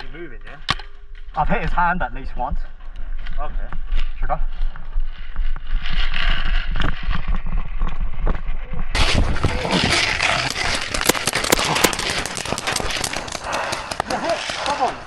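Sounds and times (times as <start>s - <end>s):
paintball markers firing: 10.2s - 15.0s.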